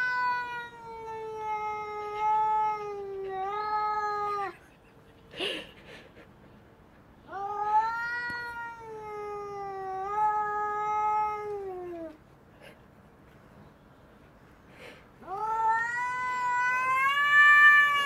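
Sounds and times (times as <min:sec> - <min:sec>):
cat yowling: 0:00.0 - 0:04.6, 0:07.3 - 0:12.1, 0:15.2 - 0:18.0.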